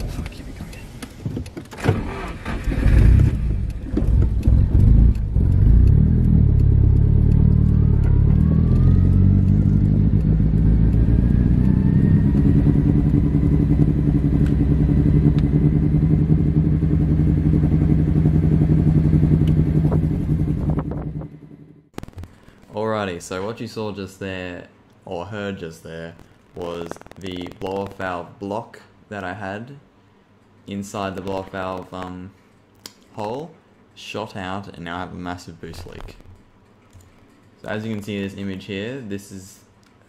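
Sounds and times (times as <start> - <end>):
car engine revving and droning: 1.9 - 21.8.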